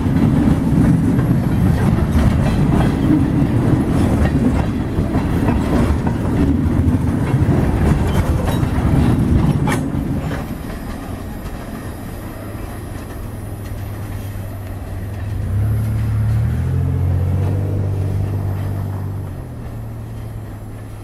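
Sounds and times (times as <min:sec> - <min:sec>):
freight train wheels clattering: 0:00.0 - 0:21.0
low engine hum: 0:12.7 - 0:21.0.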